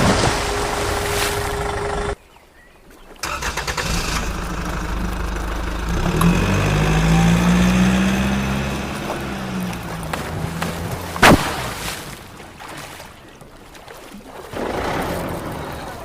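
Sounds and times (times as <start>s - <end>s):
engine running: 0.0s - 2.2s, 3.2s - 12.3s.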